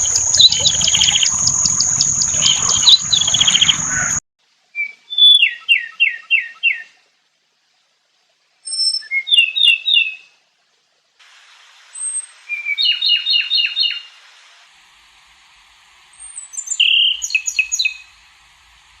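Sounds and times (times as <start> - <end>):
songbird chirping: 0.0 - 7.0, 16.2 - 18.2.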